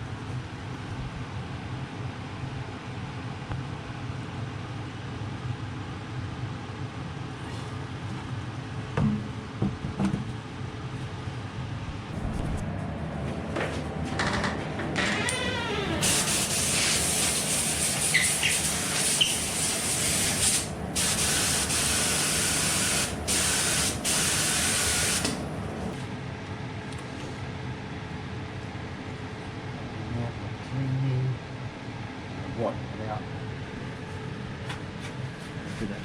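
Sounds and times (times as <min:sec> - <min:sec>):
spray gun hissing: 0:15.4 - 0:25.6.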